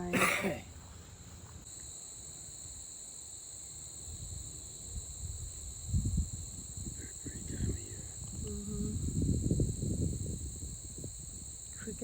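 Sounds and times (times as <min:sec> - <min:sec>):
crickets chirring: 0:00.0 - 0:12.0
low rumbling: 0:06.0 - 0:12.0.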